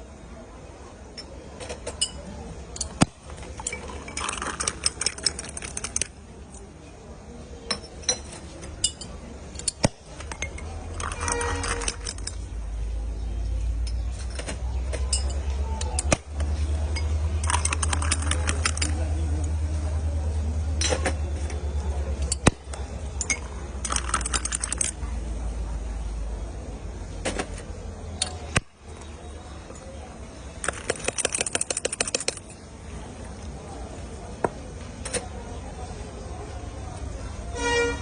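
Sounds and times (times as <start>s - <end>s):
metal utensils clinking: 1.2s - 6.1s, 7.7s - 12.5s, 13.8s - 16.2s, 16.9s - 19.2s, 22.1s - 25.0s.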